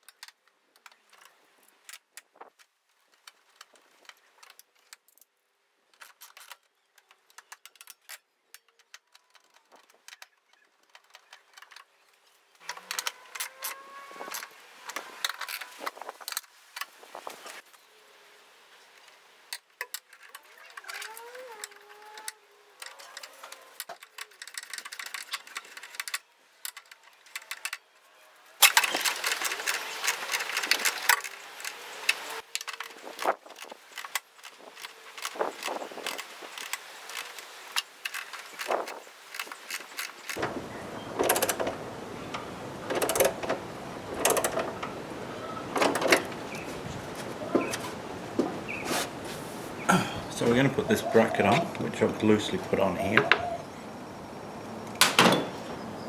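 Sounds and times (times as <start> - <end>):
light clicks and rattles: 0.0 - 17.8, 18.9 - 48.5
scraping and rustling: 8.8 - 53.6
short squeaks: 12.6 - 16.2, 20.2 - 26.2.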